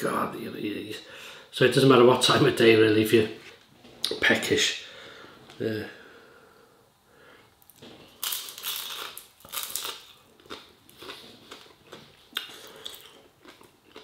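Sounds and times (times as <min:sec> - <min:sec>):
person chewing crunchy food: 0:07.7 - 0:14.0.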